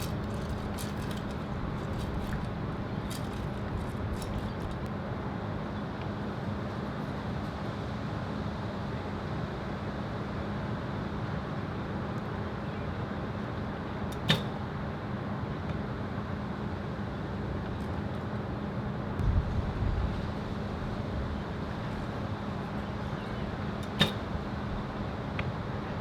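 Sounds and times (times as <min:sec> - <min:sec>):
gusts thumping microphone: 0:19.2 - 0:22.0
wind rushing over microphone: 0:19.2 - 0:22.3.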